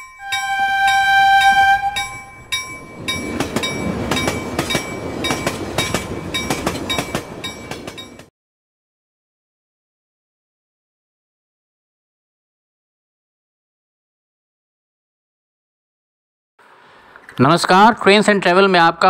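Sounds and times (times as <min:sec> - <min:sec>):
bell-like chime: 0:00.0 - 0:08.2
train rumbling and clattering: 0:00.0 - 0:08.3
train horn: 0:00.2 - 0:02.4.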